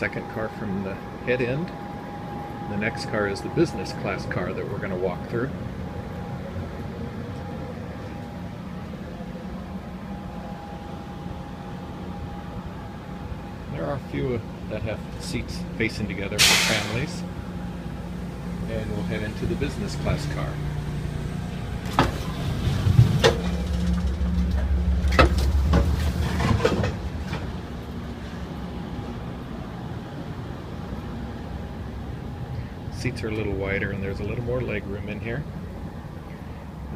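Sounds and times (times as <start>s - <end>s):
train car low hum: 0.0s - 36.9s
sharp clunks and knocks: 21.9s - 27.5s.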